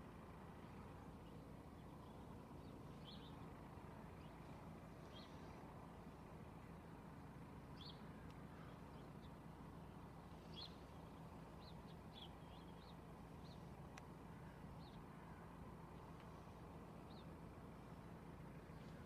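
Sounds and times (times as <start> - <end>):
low background hum: 0.0 - 19.0
small birds chirping: 0.6 - 6.2, 7.7 - 19.0
faint click: 13.9 - 14.1.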